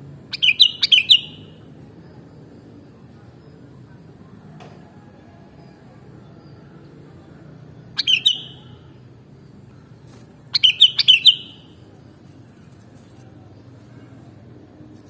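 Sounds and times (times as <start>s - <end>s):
faint low hum: 0.0s - 15.0s
bulbul chirping: 0.3s - 1.5s, 8.0s - 8.7s, 10.6s - 11.7s.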